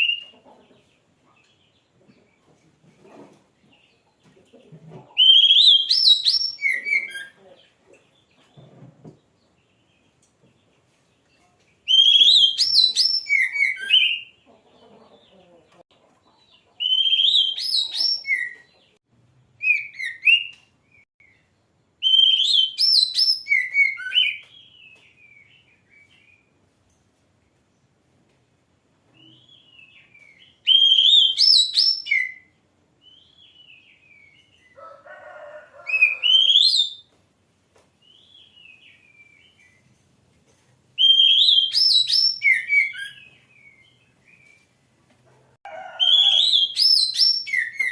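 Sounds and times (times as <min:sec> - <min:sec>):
songbird whistling: 0:05.2 - 0:07.4, 0:11.9 - 0:14.4, 0:16.8 - 0:18.7, 0:19.6 - 0:20.6, 0:22.0 - 0:26.3, 0:29.2 - 0:32.5, 0:36.0 - 0:37.1, 0:41.0 - 0:44.6, 0:46.0 - 0:47.9.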